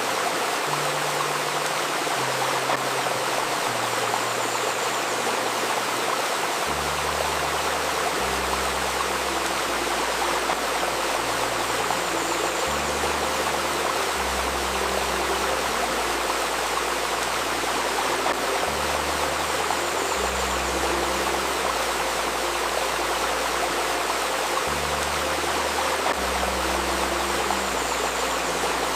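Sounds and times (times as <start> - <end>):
stream rushing and babbling: 0.0 - 28.9
low electronic drone tones: 0.6 - 28.9.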